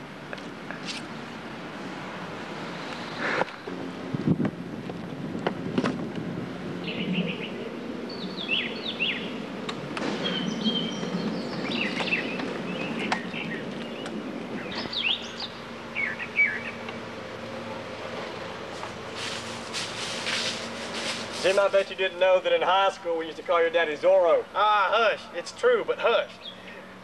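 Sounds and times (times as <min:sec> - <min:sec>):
low background noise: 0:00.0 - 0:27.0
songbirds twittering: 0:06.8 - 0:17.6, 0:26.3 - 0:27.0.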